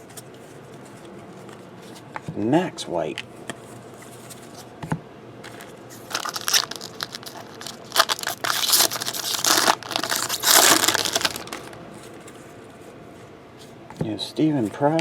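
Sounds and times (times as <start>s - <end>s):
wrapper crinkling in hands: 5.4s - 12.4s.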